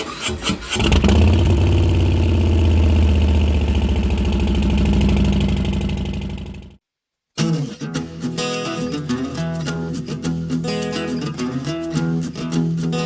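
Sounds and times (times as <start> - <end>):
vehicle engine idling: 0.8 - 6.8.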